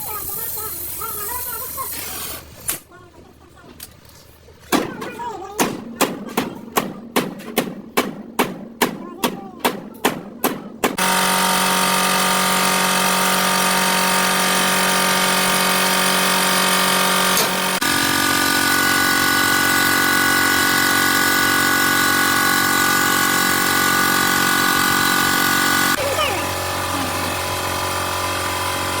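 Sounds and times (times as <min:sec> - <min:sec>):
workshop machine humming: 0:04.4 - 0:29.0
hammer strike: 0:04.7 - 0:11.0.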